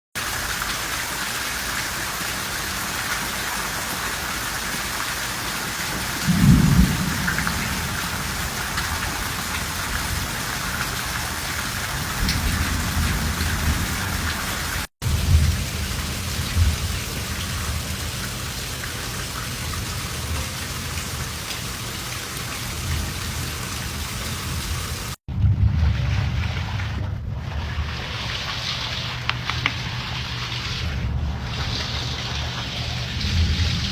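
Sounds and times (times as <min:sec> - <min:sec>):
steady rain falling: 0:00.2 - 0:33.9
thunder rolling: 0:05.9 - 0:18.7, 0:22.8 - 0:30.0, 0:30.7 - 0:33.9.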